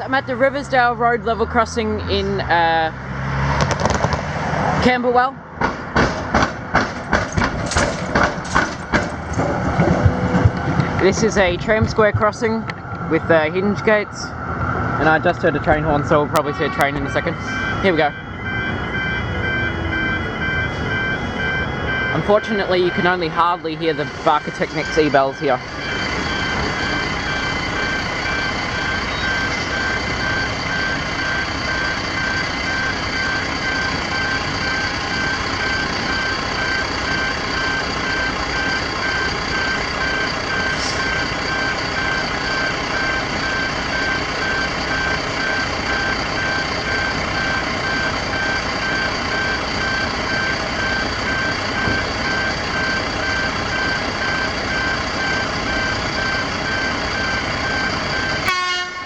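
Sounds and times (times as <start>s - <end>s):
rapidly beeping gate alarms: 15.0s - 59.0s.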